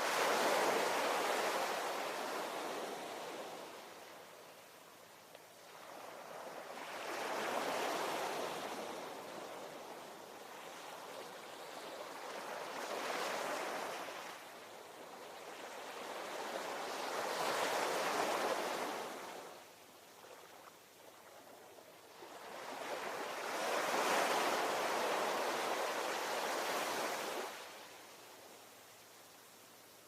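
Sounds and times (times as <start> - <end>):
ocean waves breaking on shore: 0.0 - 4.3, 22.1 - 28.0.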